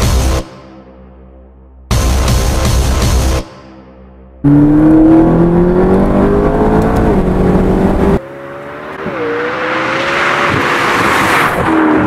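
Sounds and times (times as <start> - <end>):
car engine accelerating hard: 4.4 - 12.0.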